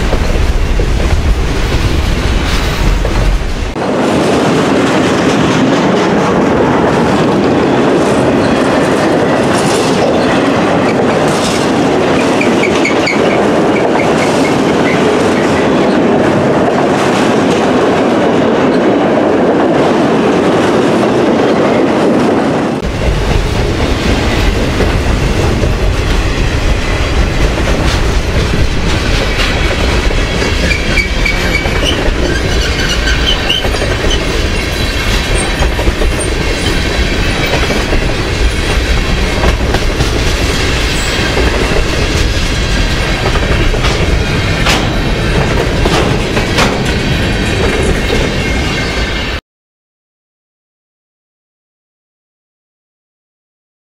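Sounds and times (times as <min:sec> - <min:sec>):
steel wheels rumbling on rail: 0:00.0 - 0:49.4
wheels clacking over rail joints: 0:22.8 - 0:48.9.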